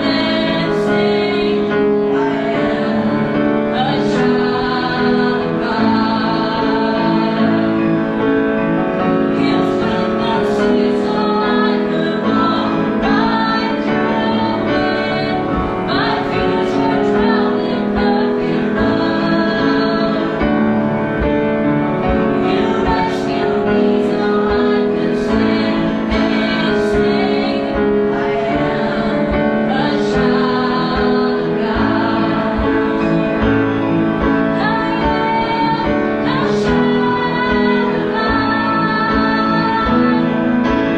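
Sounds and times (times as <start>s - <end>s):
woman singing worship song: 0.0s - 8.3s, 9.0s - 21.3s, 22.0s - 40.9s
instrumental accompaniment: 0.0s - 40.9s.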